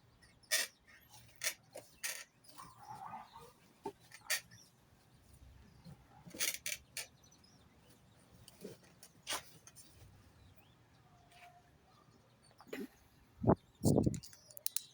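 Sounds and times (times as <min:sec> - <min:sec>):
sharp clicks and taps: 0:13.8 - 0:14.9.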